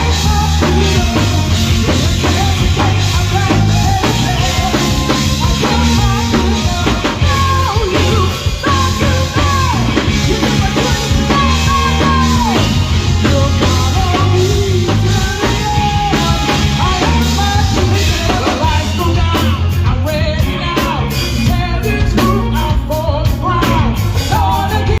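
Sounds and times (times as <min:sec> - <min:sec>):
bass line: 0:00.0 - 0:25.0
drum kit: 0:00.0 - 0:25.0
person singing: 0:00.0 - 0:25.0.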